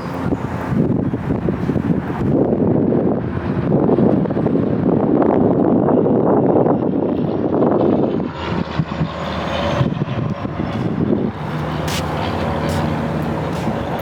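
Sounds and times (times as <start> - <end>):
motor engine humming: 0.0 - 2.6, 9.1 - 14.0
wind buffeting microphone: 0.0 - 14.0.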